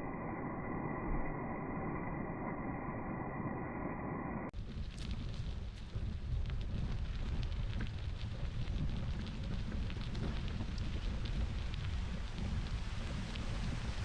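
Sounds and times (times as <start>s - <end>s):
tyres crackling on gravel: 4.6s - 14.0s
wind buffeting microphone: 4.6s - 14.0s.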